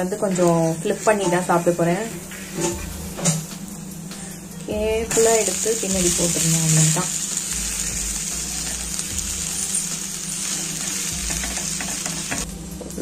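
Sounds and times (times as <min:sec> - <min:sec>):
dosa sizzling on griddle: 0:05.4 - 0:12.5.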